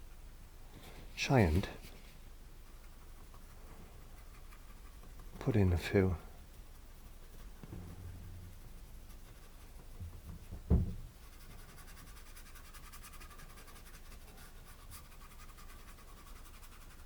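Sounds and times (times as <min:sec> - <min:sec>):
paintbrush scratching on canvas: 0:01.4 - 0:10.5, 0:11.1 - 0:17.0
dull thump: 0:07.6 - 0:09.1, 0:09.8 - 0:11.2.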